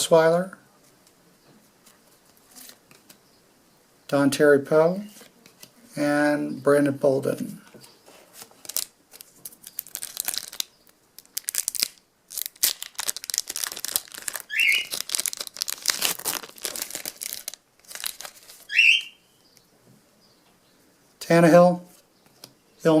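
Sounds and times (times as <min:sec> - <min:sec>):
wrapper crinkling and tearing: 0:08.4 - 0:18.7.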